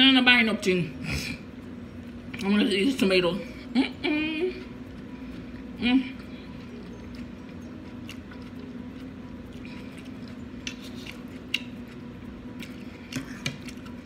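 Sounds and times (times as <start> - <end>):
low electrical hum: 0.0 - 14.0
close chewing: 4.5 - 14.0
wet mouth clicks: 10.6 - 11.8.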